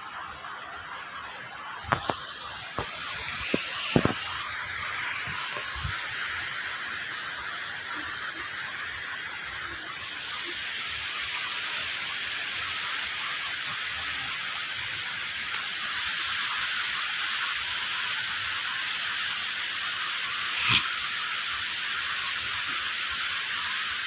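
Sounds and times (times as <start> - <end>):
waterfall rushing: 2.1 - 20.8.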